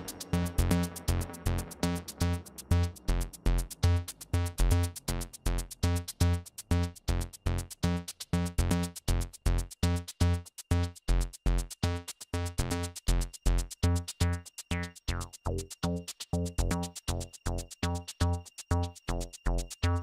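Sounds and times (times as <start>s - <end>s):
sharp percussion hits: 0.0s - 6.5s
drum machine kick drum: 0.0s - 20.0s
synthesizer: 0.0s - 20.0s.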